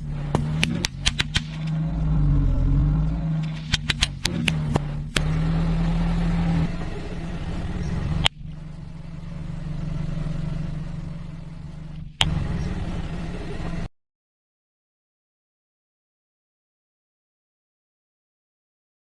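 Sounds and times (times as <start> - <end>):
car engine running: 0.0 - 13.9.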